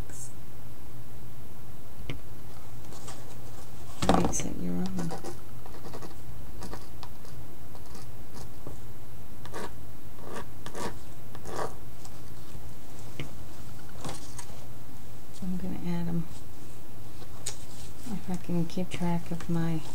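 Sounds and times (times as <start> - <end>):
steady low hum: 0.0 - 19.9
pen scratching on paper: 4.8 - 6.9, 9.5 - 11.8.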